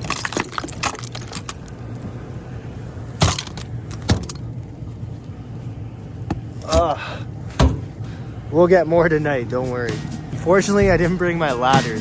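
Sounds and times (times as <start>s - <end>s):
loud thumps: 7.5s - 8.0s.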